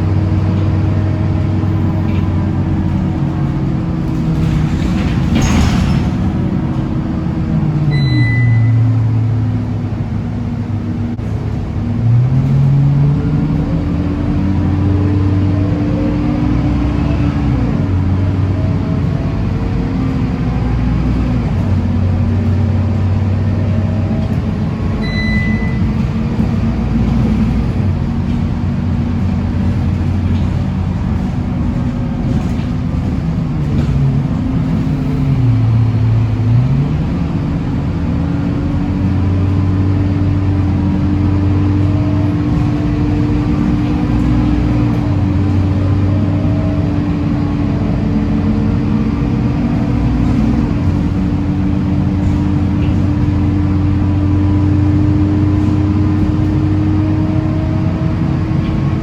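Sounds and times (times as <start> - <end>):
bus diesel engine running: 0.0 - 59.0
short high beep: 7.9 - 9.0, 25.0 - 25.9.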